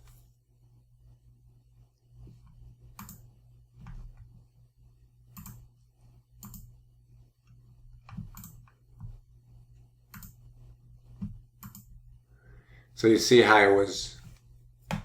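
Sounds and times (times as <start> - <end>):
low electrical hum: 0.0 - 15.0
computer mouse clicking: 2.9 - 4.3, 5.3 - 5.7, 6.4 - 6.7, 7.5 - 9.2, 10.1 - 10.4, 11.1 - 11.9.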